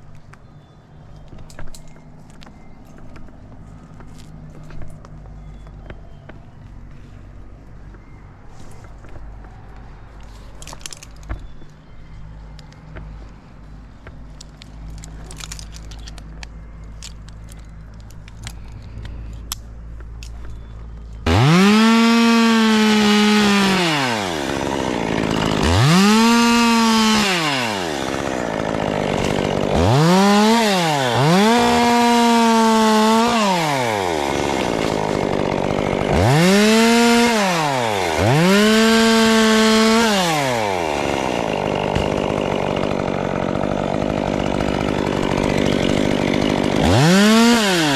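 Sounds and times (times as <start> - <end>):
chainsaw revving: 21.2 - 47.9.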